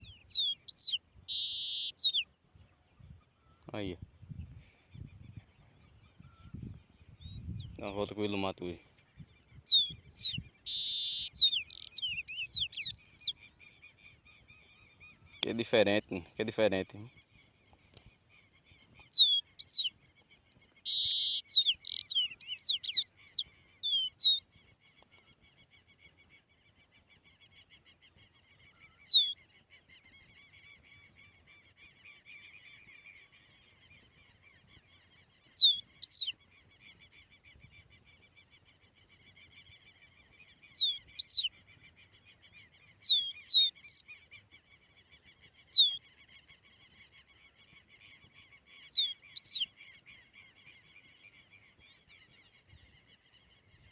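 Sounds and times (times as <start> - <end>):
songbird whistled calls: 0.0 - 2.3, 9.7 - 13.4, 19.2 - 19.9, 20.9 - 24.4, 35.6 - 36.4, 40.8 - 41.5, 43.1 - 44.0, 49.0 - 49.7.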